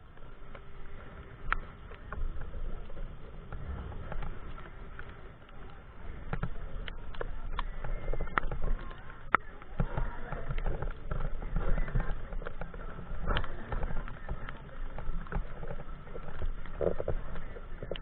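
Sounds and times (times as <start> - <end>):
bicycle on wet road rumble: 0.0 - 18.0.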